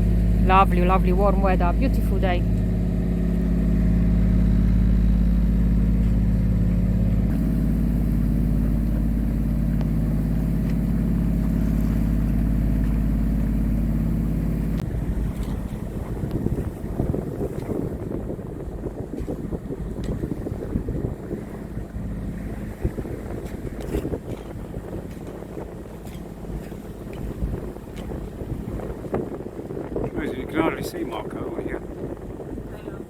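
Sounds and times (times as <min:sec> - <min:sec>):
diesel engine running: 0:00.0 - 0:17.3
water against hull: 0:00.0 - 0:33.0
wind buffeting microphone: 0:00.0 - 0:33.0.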